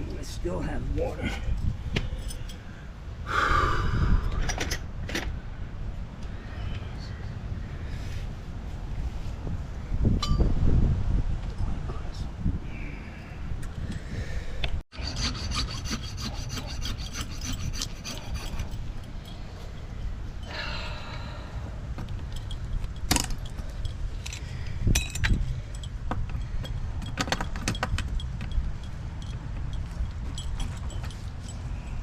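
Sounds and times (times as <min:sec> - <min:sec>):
saw cutting copper pipe: 0:14.9 - 0:18.9
saw blade squeal: 0:15.0 - 0:18.7.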